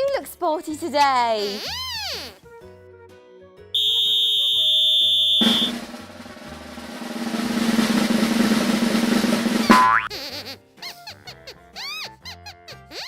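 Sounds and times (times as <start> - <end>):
high whistle blast: 3.8 - 5.9
snare drum roll: 5.3 - 10.1.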